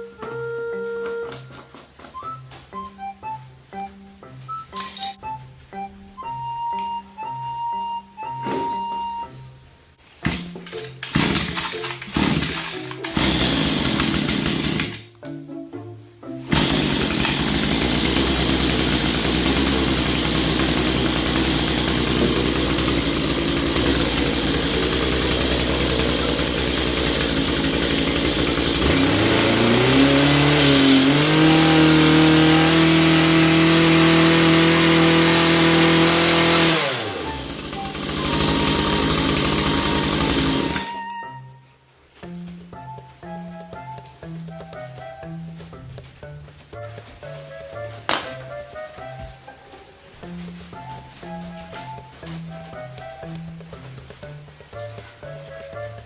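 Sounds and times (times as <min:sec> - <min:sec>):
brush cutter engine revving: 0:10.2 - 0:15.1, 0:16.5 - 0:41.2.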